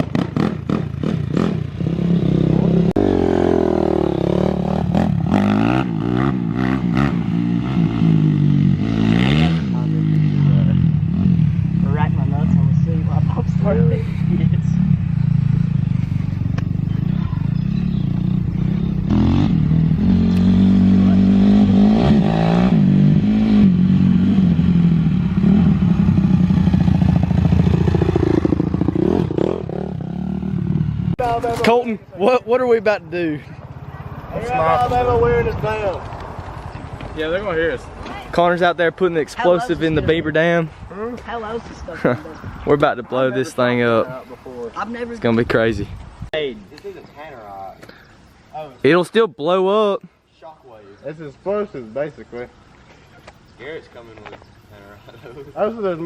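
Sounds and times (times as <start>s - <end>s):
small motorbike engine revving: 14.4s - 31.1s.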